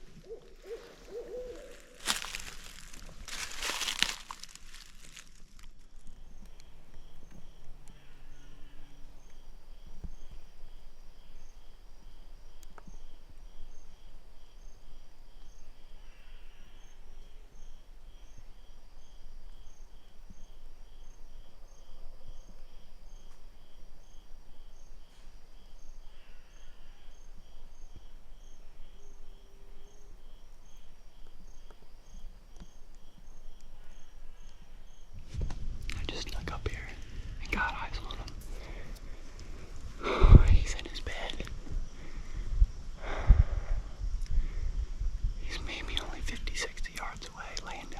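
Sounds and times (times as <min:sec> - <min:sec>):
insects chirping: 0:00.0 - 0:47.9.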